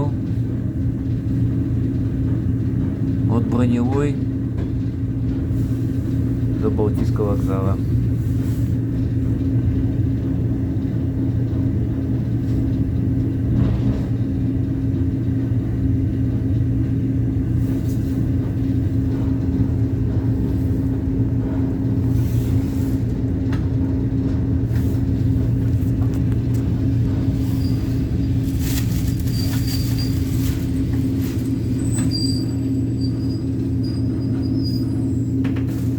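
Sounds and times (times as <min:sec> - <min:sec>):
electric train rumbling: 0:00.0 - 0:35.9.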